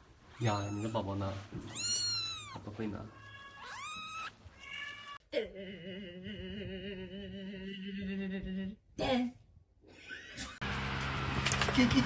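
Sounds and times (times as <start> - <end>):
cat meowing: 0.3 - 5.2.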